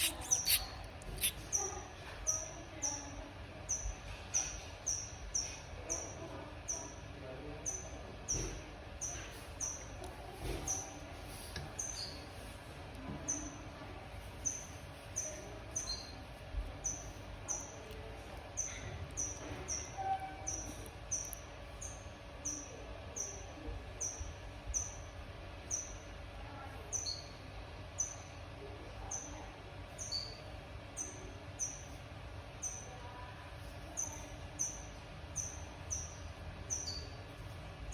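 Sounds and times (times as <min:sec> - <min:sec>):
nestling bird begging chirps: 0:00.0 - 0:01.5.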